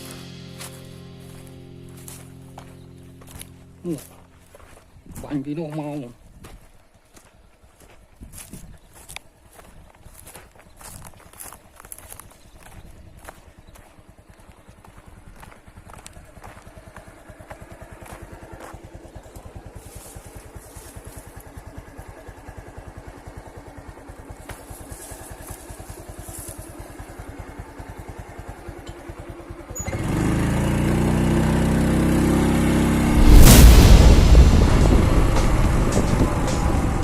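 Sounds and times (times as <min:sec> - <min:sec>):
small engine puttering: 0:09.0 - 0:33.1
loud droning with held tones: 0:23.4 - 0:37.0.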